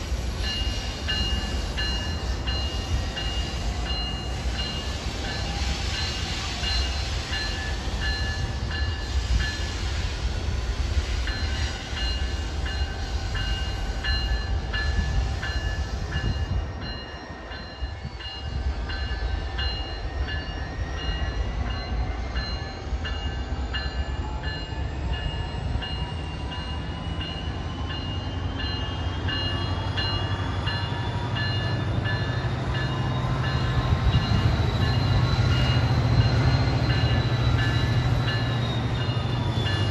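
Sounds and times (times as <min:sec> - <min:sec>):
train rumbling past: 0:00.0 - 0:39.9.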